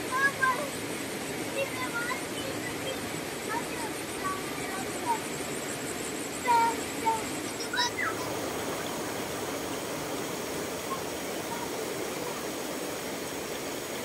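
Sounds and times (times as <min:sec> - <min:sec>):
river water rushing: 0:00.0 - 0:14.0
short high calls: 0:07.5 - 0:08.4.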